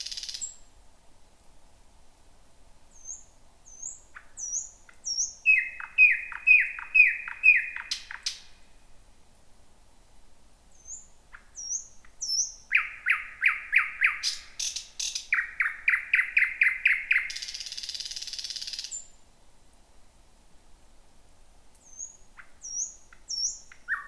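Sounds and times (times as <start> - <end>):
nightingale singing: 0.0 - 0.7, 2.9 - 8.7, 10.7 - 19.2, 21.8 - 24.0.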